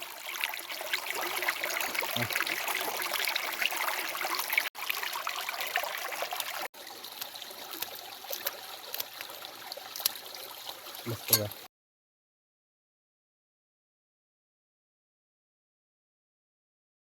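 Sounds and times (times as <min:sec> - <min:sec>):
stream water flowing: 0:00.0 - 0:11.7.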